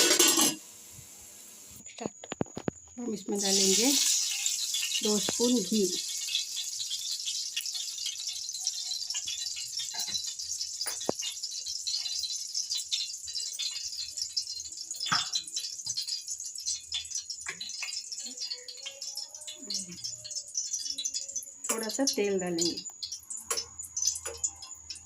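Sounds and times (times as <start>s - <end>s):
utensil clinking against pot: 0.0s - 0.6s
ghee sizzling in a pot: 0.0s - 25.0s.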